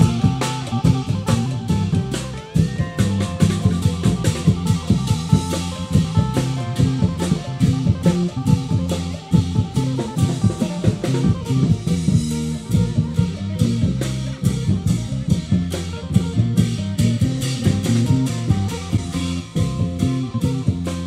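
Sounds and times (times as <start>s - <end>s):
amplified plucked-string melody: 0.0s - 21.0s
drums driving beat: 0.0s - 21.0s.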